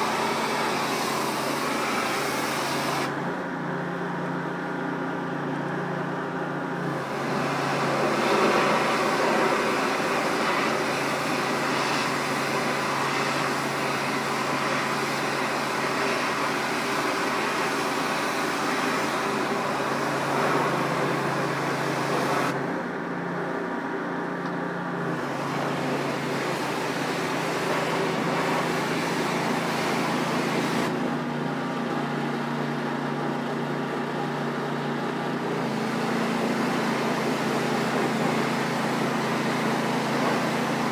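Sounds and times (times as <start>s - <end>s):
water spray hissing against wall: 0.0s - 3.1s, 6.9s - 22.6s, 25.1s - 30.9s, 35.6s - 40.9s
pressure washer engine running: 0.0s - 40.9s.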